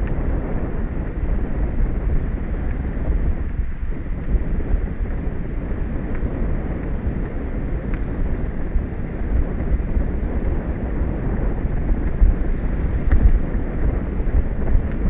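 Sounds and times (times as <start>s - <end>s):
faint tick: 0.0s - 0.2s, 6.1s - 8.1s, 13.0s - 13.4s, 14.6s - 15.0s
wind buffeting microphone: 0.0s - 15.0s.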